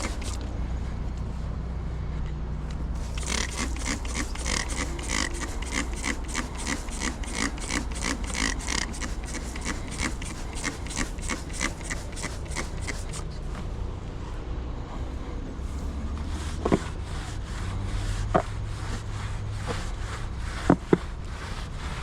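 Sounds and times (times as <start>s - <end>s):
hand tool rasping over surface: 0.0s - 0.4s, 3.0s - 13.3s
steady low hum: 0.0s - 2.1s.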